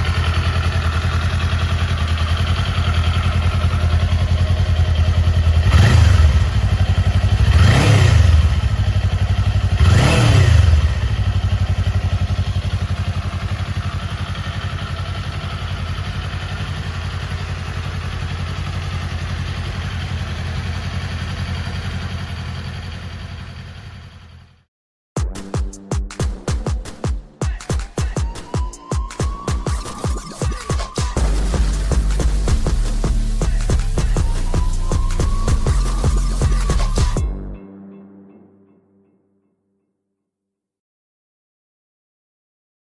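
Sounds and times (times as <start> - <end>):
motorcycle engine idling and revving: 0.0 - 24.7, 29.4 - 37.4.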